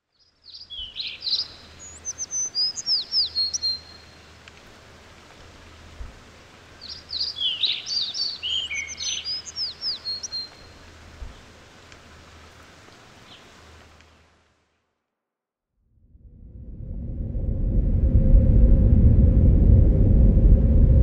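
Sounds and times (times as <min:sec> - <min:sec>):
songbird chirping: 0:00.0 - 0:14.2
woodland ambience hiss: 0:00.0 - 0:15.0.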